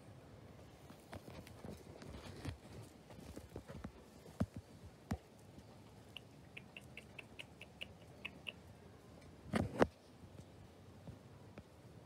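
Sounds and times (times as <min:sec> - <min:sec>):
bird chirping: 0:05.6 - 0:08.7.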